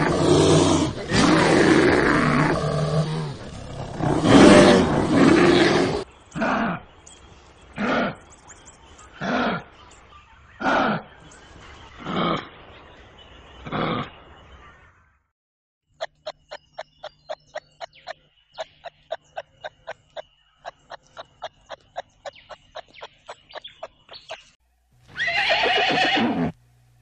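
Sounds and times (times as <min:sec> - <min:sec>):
sharp evenly spaced clicks: 0:16.0 - 0:24.6
horse whinny: 0:25.2 - 0:26.6.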